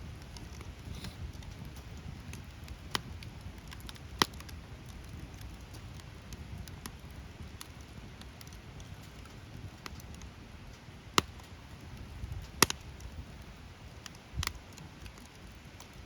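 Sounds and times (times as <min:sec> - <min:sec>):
campfire crackling: 0:00.0 - 0:16.0
fire sharp pops: 0:00.0 - 0:16.0.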